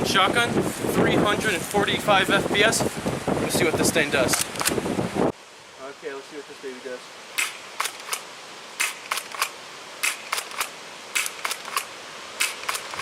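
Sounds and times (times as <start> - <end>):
airsoft shotgun pump clicks: 7.4 - 8.2, 8.8 - 13.0.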